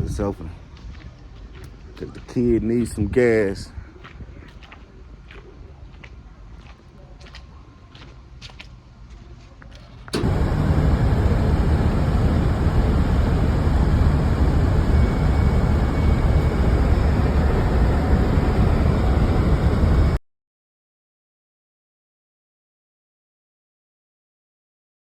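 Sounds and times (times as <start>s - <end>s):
vehicle road and engine noise: 10.1s - 20.2s.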